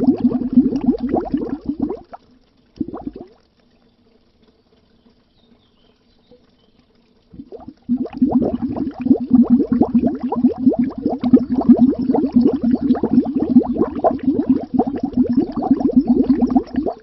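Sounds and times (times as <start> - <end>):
bubbles gurgling under water: 0.0 - 2.2, 2.8 - 3.4, 7.3 - 17.0.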